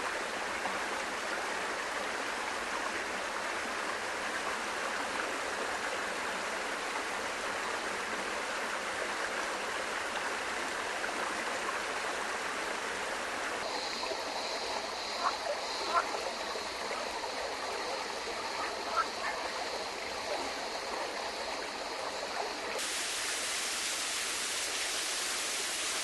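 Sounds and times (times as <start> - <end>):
stream water running over rocks: 0.0 - 26.0.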